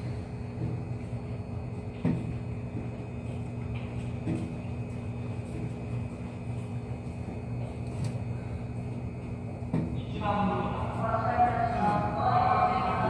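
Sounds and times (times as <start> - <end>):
train car equipment hum: 0.0 - 13.0.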